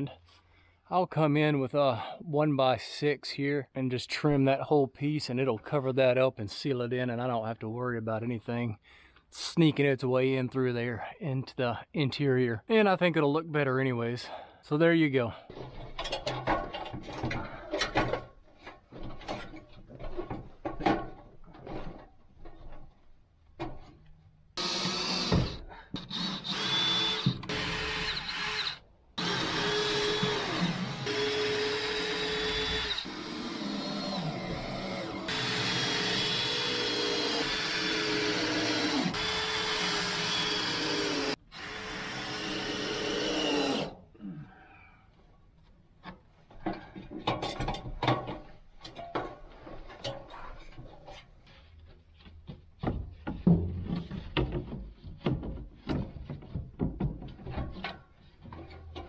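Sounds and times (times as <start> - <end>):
power drill whine: 24.6 - 43.9
lumber knocking and scraping: 46.1 - 59.0.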